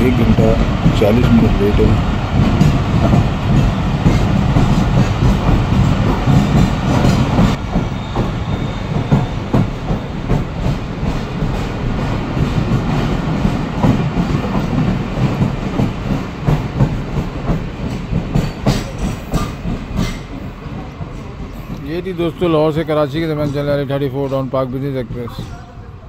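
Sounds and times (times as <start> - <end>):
train wheels clattering over rail joints: 0.0 - 21.9.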